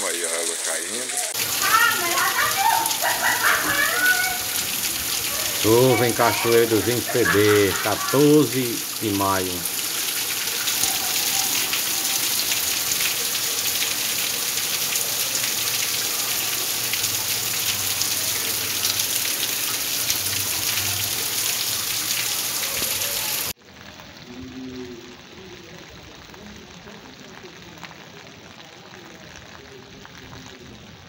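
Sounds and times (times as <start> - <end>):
heavy rain on a tile roof: 0.0 - 31.0.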